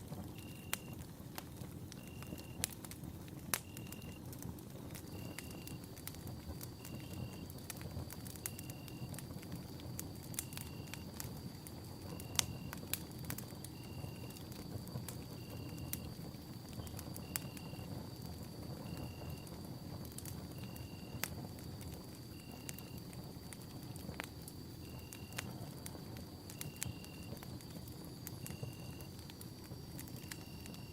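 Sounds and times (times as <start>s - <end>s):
campfire crackling and popping: 0.0s - 30.9s.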